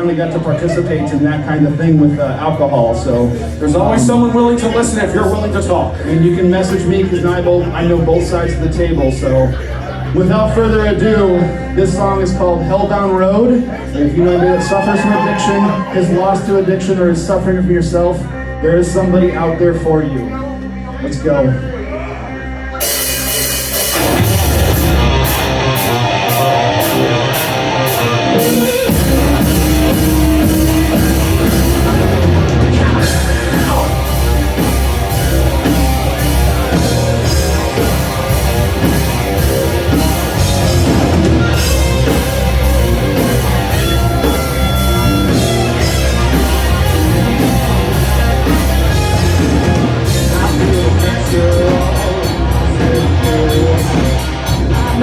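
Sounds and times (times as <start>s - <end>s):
bass guitar: 0.0s - 55.0s
rock band playing: 0.0s - 55.0s
electric guitar: 21.5s - 55.0s
drums with cymbal hits: 22.8s - 55.0s.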